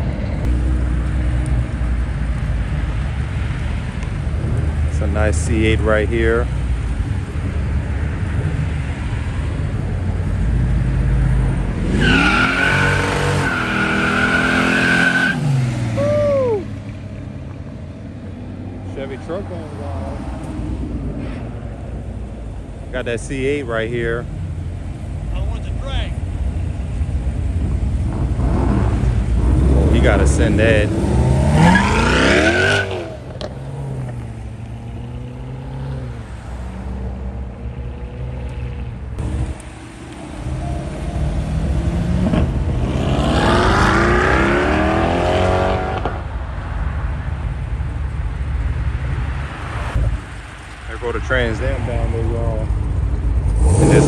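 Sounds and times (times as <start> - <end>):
tires squealing: 10.9 - 16.8, 28.1 - 34.3
car engine accelerating: 26.7 - 46.4, 50.9 - 54.0.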